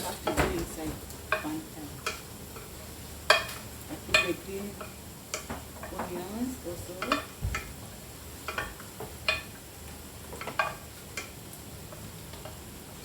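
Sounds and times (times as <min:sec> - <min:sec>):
utensil scraping and knocking on pan: 0:00.0 - 0:07.8
faint frying sizzle: 0:00.0 - 0:13.0.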